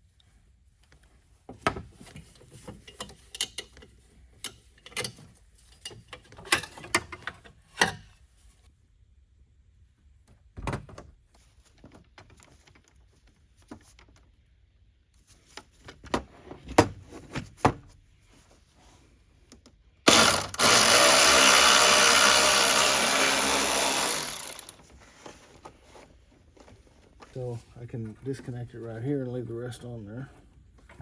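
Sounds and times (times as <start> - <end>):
hand tools clicking and knocking: 2.2 - 8.1, 20.1 - 24.8
handheld power tool running: 20.1 - 24.8.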